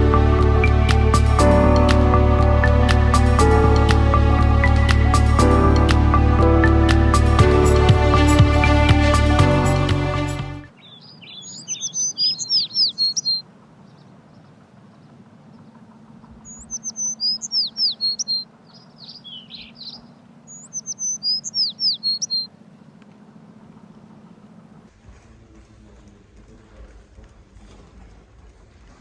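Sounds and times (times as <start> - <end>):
songbird chirping: 0.0 - 23.1.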